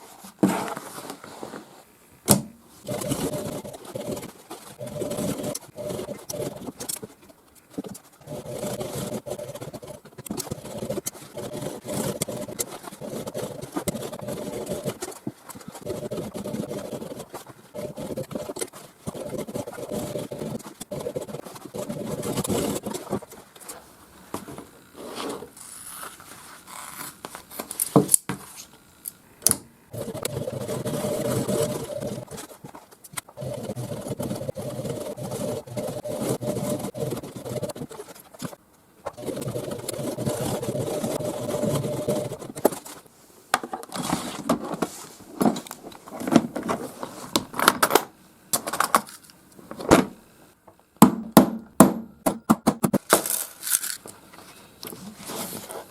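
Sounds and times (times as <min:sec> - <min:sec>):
sewing machine stitching: 0:02.8 - 0:07.1, 0:08.0 - 0:23.2, 0:29.9 - 0:32.6, 0:33.4 - 0:38.5, 0:39.1 - 0:42.6.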